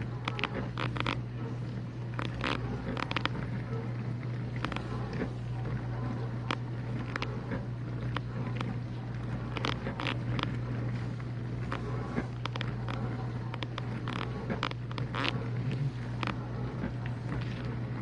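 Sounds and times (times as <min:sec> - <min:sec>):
dishwasher motor hum: 0:00.0 - 0:18.0.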